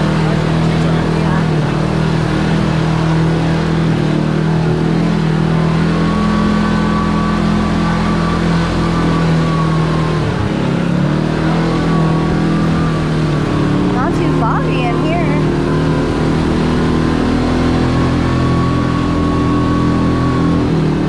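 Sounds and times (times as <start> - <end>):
utility vehicle engine running: 0.0 - 21.0.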